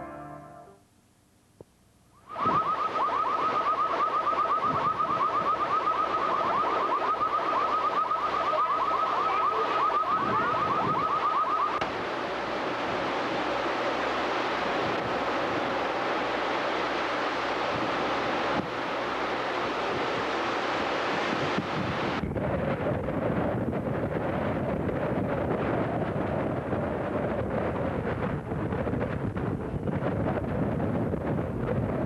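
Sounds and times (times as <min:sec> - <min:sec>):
hiss of noise: 0:01.6 - 0:22.2
wind and surf rushing: 0:02.2 - 0:32.0
electronic alarm beeping rapidly: 0:02.4 - 0:11.8.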